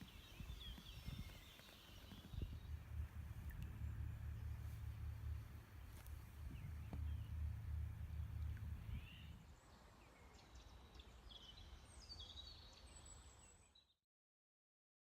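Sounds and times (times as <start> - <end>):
birds chirping and whistling: 0.0 - 2.7, 8.7 - 9.4
faint low rumble: 0.0 - 11.0.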